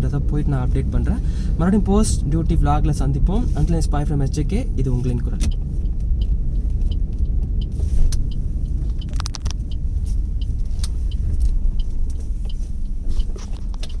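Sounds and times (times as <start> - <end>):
car interior rumble: 0.0 - 14.0.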